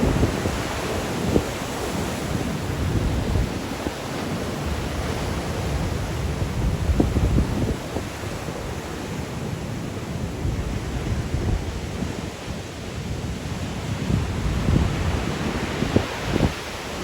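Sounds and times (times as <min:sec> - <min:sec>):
sea waves breaking on shore: 0:00.0 - 0:17.0
wind buffeting microphone: 0:00.0 - 0:17.0.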